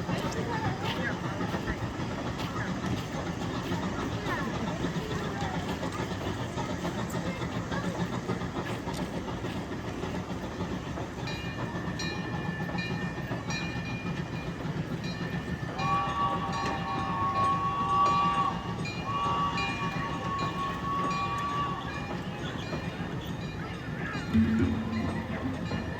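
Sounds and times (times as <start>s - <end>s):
train engine rumble: 0.0s - 25.9s
train whistle blasts: 15.8s - 22.4s
bell ringing: 24.3s - 25.9s.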